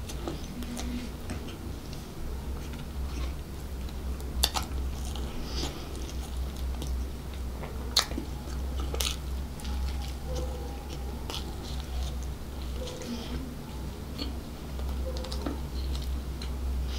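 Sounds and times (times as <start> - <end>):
steady low hum: 0.0 - 16.9
chewing and biting: 4.4 - 13.1.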